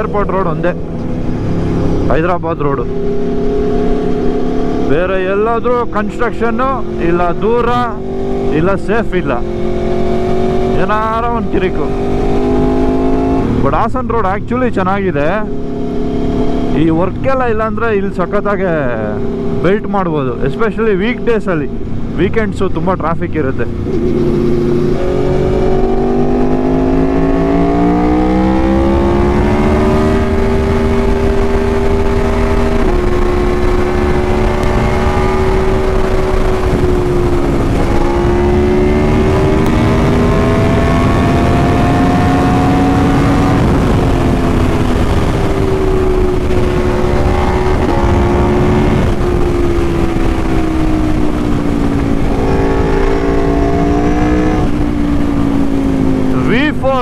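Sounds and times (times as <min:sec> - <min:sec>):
motorcycle engine revving: 0:00.0 - 0:57.0
wind rush on microphone: 0:23.7 - 0:57.0.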